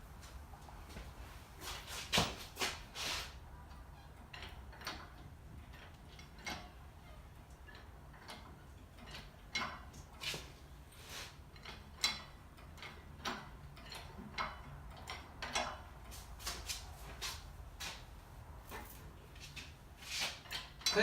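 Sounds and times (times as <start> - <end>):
metallic clicks and clanks of jack: 3.7 - 10.6, 11.4 - 16.8, 18.7 - 21.0.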